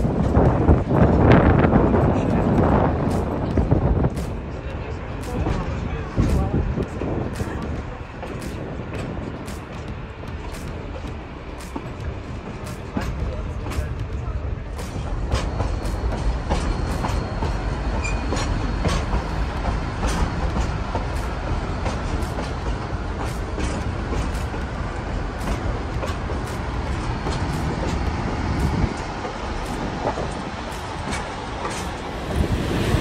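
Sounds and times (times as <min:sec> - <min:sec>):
train cars rumbling on track: 0:00.0 - 0:33.0
faint thin wheel squeal: 0:18.0 - 0:18.3.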